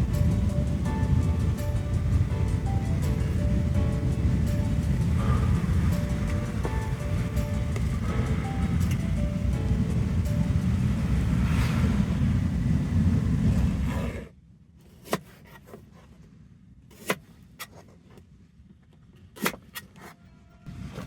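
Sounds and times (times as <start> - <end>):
wind buffeting microphone: 0.0 - 14.1.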